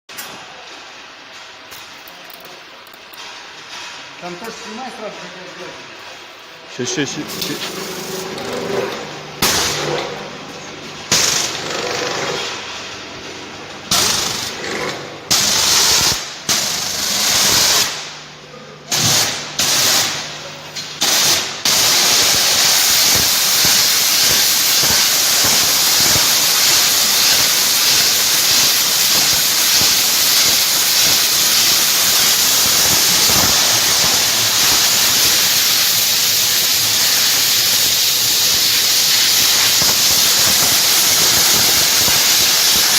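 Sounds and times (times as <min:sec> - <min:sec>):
low machine hum: 0:04.1 - 0:15.3
pressure washer spraying water: 0:06.4 - 0:10.1, 0:11.1 - 0:11.7, 0:13.9 - 0:14.6, 0:15.3 - 0:18.0, 0:18.9 - 0:20.3, 0:20.9 - 0:42.9.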